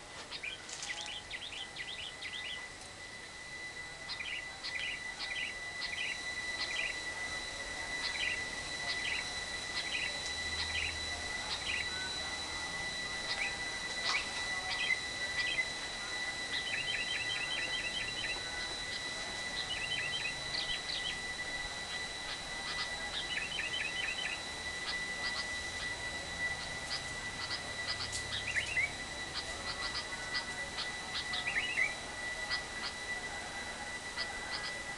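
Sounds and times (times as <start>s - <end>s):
steady high tone: 0.0s - 34.9s
lovebird chirping and chattering: 26.5s - 31.9s.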